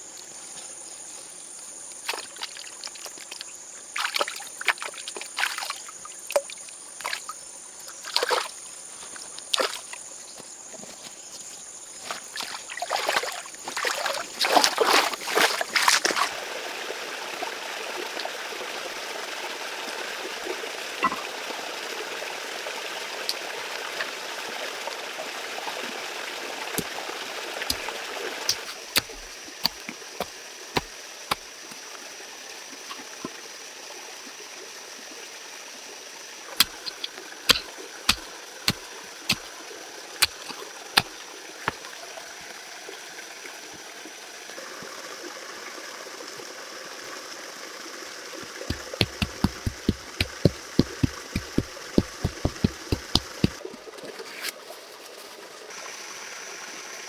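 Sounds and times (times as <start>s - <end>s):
running water: 12.0s - 16.4s, 26.5s - 32.1s, 36.5s - 42.2s, 48.3s - 53.7s
sharp knocks: 48.7s - 53.6s.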